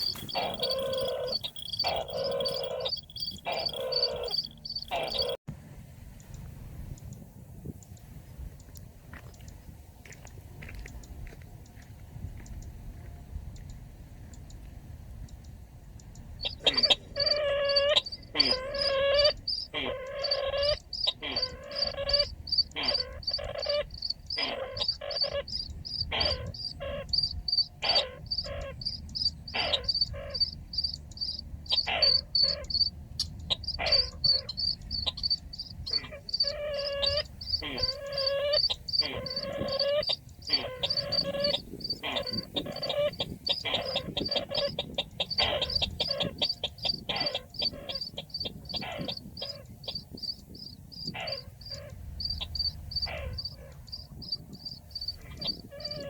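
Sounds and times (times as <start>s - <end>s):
pitched bird calls: 0.0s - 5.4s, 16.4s - 56.0s
rapid high pulsing: 0.0s - 5.4s.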